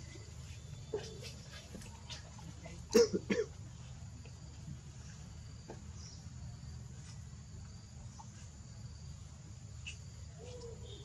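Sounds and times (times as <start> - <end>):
insect chirps: 2.9 - 11.0.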